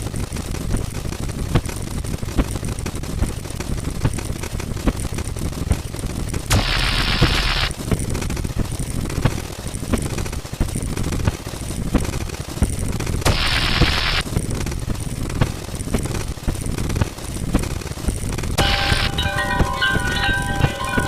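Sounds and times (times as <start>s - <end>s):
burst of hiss: 6.5s - 7.7s, 13.3s - 14.2s.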